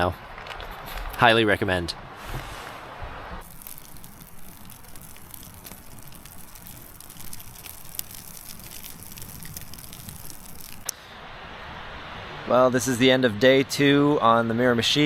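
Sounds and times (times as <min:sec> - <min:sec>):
campfire crackling and popping: 0:00.0 - 0:01.3, 0:03.4 - 0:10.9.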